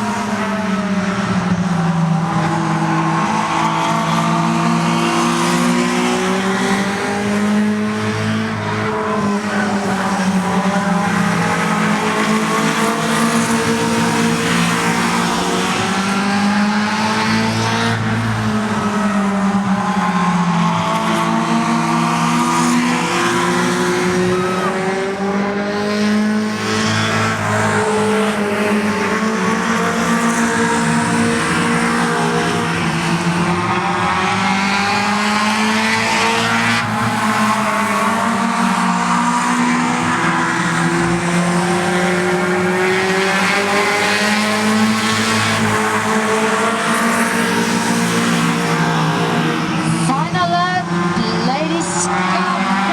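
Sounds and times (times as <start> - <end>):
race car engines: 0.0 - 52.9.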